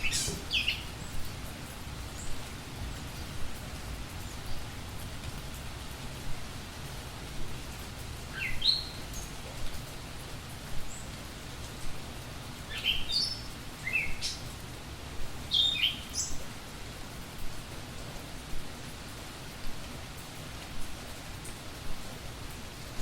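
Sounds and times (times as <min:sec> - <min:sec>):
budgie chirping: 0:00.0 - 0:00.8
steady hiss: 0:00.0 - 0:23.0.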